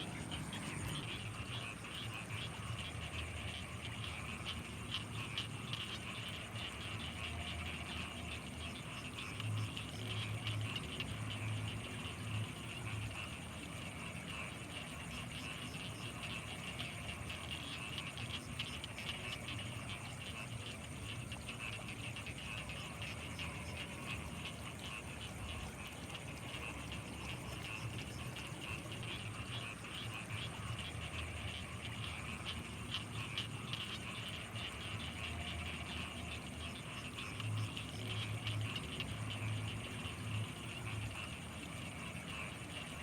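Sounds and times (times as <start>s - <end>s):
frogs trilling: 0.0s - 43.0s
high insect whine: 0.0s - 43.0s
low pulsing frog calls: 0.0s - 43.0s.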